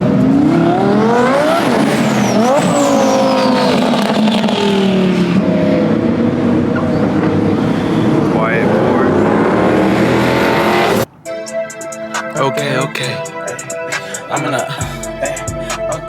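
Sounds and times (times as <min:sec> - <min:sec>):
car engine accelerating: 0:00.0 - 0:11.4.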